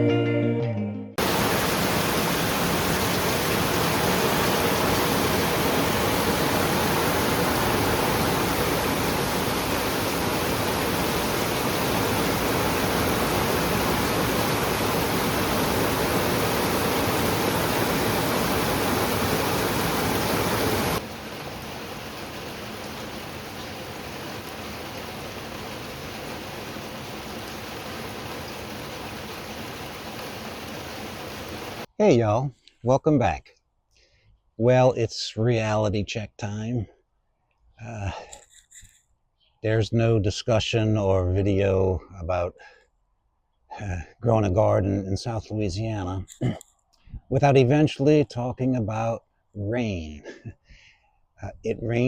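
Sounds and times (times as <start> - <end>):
steady rain falling: 1.2 - 31.9.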